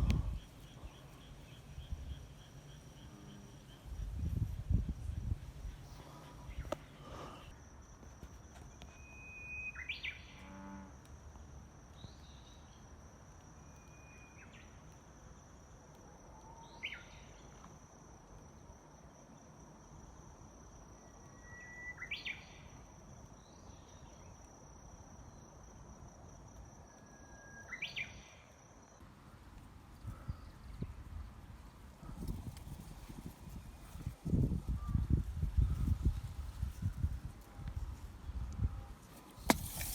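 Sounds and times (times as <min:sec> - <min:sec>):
songbird singing: 0:00.0 - 0:07.6, 0:08.6 - 0:10.7, 0:11.3 - 0:17.7, 0:20.9 - 0:24.4, 0:26.9 - 0:29.1
high insect trill: 0:00.0 - 0:29.0.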